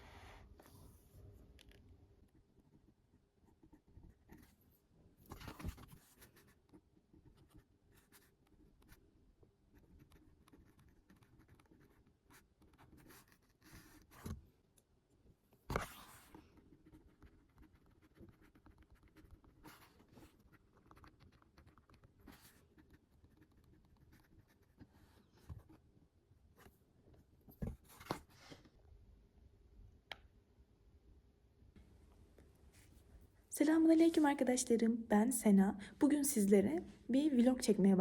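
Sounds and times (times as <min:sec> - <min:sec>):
pen scratching on paper: 0:03.4 - 0:04.6, 0:05.3 - 0:09.0, 0:09.7 - 0:14.4, 0:15.7 - 0:25.8.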